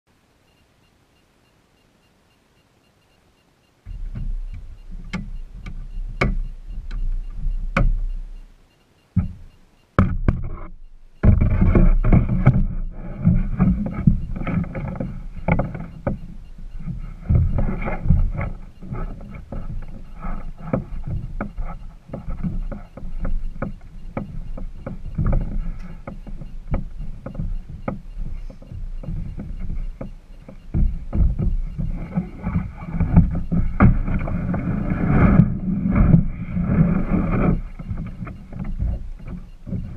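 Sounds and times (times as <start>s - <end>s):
low rumble on microphone: 3.8s - 39.9s
sharp knocks on kayak: 10.0s - 10.6s.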